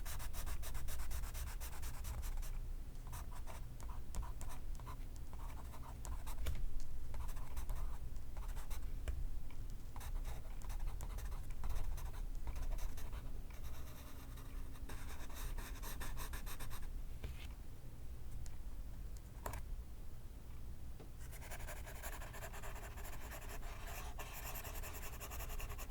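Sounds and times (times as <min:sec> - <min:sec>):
pencil writing on paper: 0:21.3 - 0:25.9.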